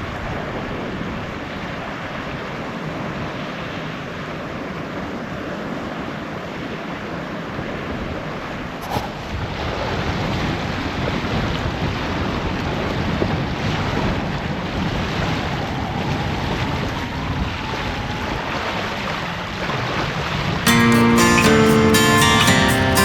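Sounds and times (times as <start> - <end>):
wind buffeting microphone: 8.7 - 20.6.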